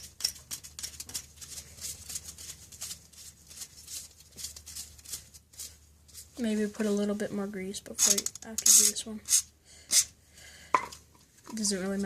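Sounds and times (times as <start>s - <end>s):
scrapes and clicks of screwing part: 8.0s - 10.1s.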